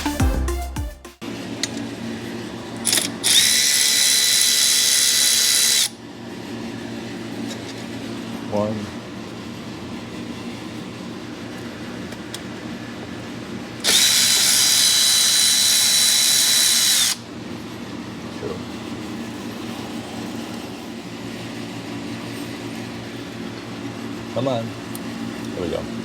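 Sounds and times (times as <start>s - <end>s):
power drill whining: 2.8s - 5.9s, 13.8s - 17.2s.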